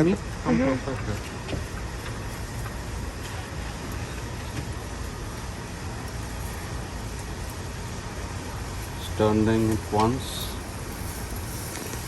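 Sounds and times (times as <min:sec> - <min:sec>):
light hiss: 0:01.6 - 0:12.0.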